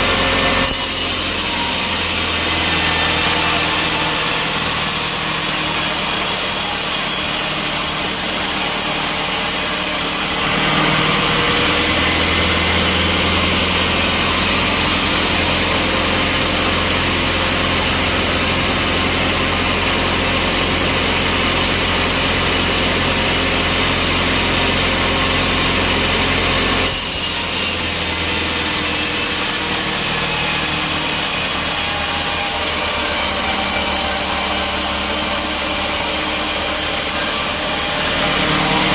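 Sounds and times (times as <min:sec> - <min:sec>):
saw cutting through log: 0:00.0 - 0:38.9
sawmill machine running: 0:00.0 - 0:38.9.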